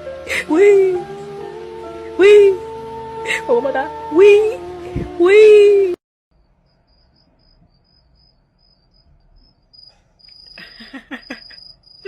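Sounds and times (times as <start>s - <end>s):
high insect-like chirping: 6.4s - 12.0s.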